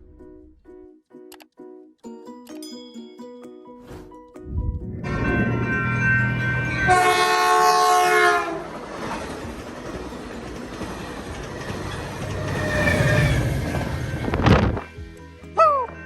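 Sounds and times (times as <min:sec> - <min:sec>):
train rumbling and clattering: 0:04.5 - 0:15.0
train horn: 0:05.0 - 0:08.8, 0:12.2 - 0:14.4.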